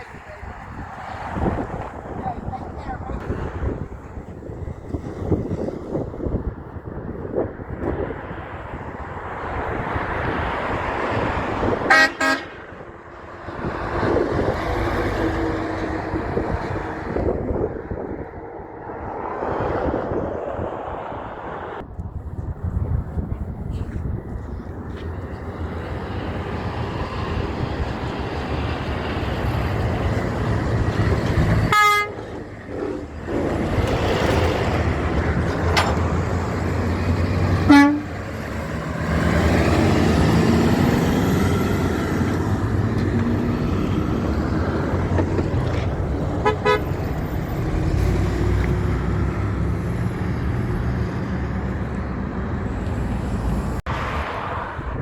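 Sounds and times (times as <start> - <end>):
heavy trucks passing: 0.0 - 55.0
truck horn toots: 11.8 - 12.8, 31.6 - 32.4, 37.6 - 38.2, 46.4 - 47.0.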